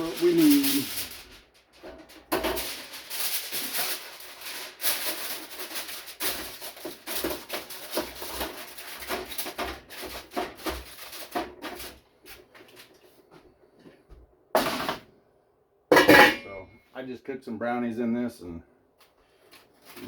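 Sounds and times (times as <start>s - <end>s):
aluminium foil crinkling: 0.0s - 13.2s, 19.0s - 20.0s.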